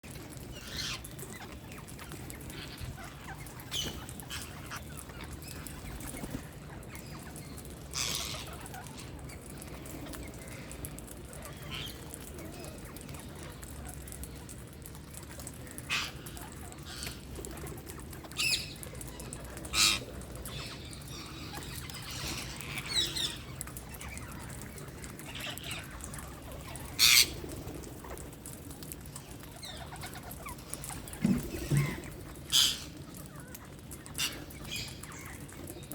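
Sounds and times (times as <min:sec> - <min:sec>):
parakeets squawking: 0:00.5 - 0:06.4, 0:19.7 - 0:24.2, 0:26.6 - 0:27.4, 0:30.8 - 0:33.0.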